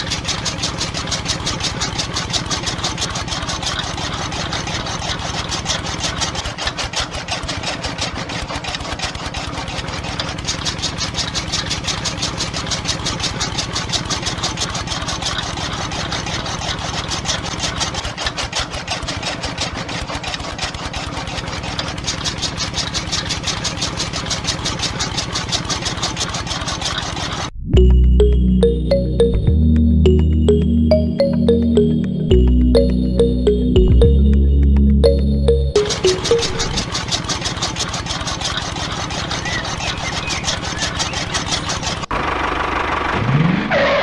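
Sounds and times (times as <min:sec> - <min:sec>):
small motor chugging: 0:00.0 - 0:27.5, 0:36.6 - 0:43.4.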